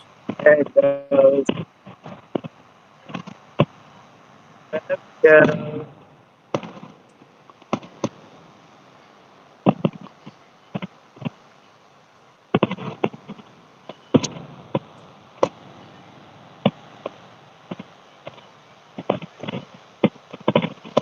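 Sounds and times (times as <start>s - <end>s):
fireworks popping and banging: 6.5s - 8.3s, 9.6s - 11.4s, 12.6s - 15.6s, 16.6s - 21.0s.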